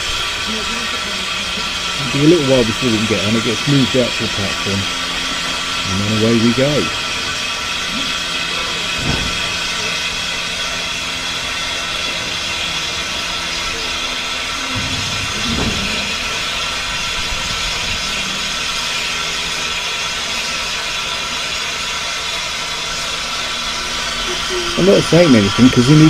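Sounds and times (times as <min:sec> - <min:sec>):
low machinery hum: 0:00.0 - 0:26.0
steam hissing: 0:00.0 - 0:26.0
low rumble: 0:08.7 - 0:18.9.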